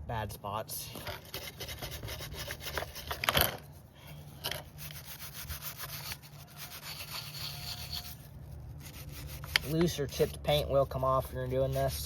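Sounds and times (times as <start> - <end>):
brush scrubbing chainsaw body: 4.5 - 8.2, 8.8 - 12.0.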